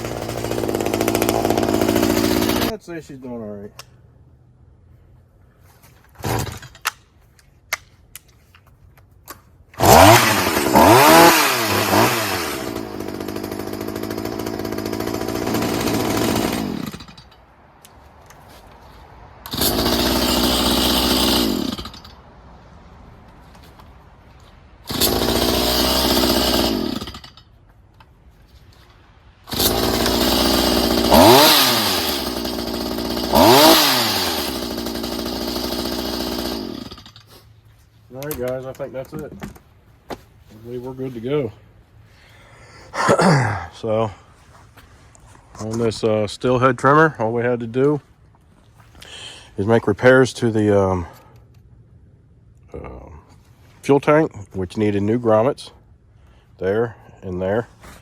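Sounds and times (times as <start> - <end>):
hedge trimmer engine revving: 0.0 - 2.8, 9.8 - 17.3, 19.4 - 22.2, 24.8 - 27.4, 29.5 - 37.2.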